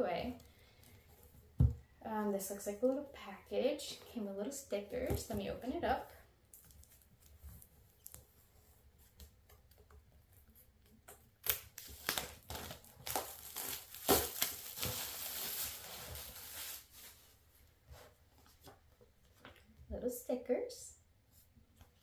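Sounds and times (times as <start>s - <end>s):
wrapping torn and crinkled: 11.2s - 17.2s.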